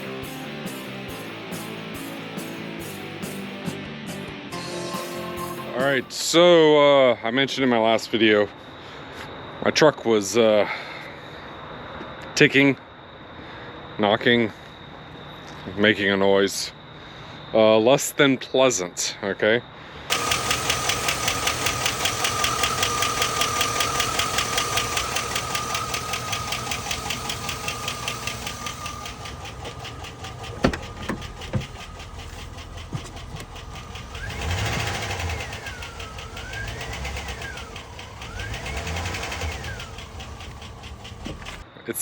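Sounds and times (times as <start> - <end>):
engine lifter ticking: 20.1 - 41.6
sharp clicks: 20.1 - 41.6.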